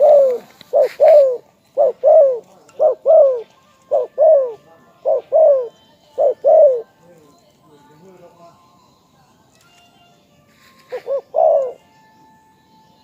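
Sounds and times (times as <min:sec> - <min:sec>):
dove cooing: 0:00.0 - 0:07.0, 0:10.8 - 0:12.0.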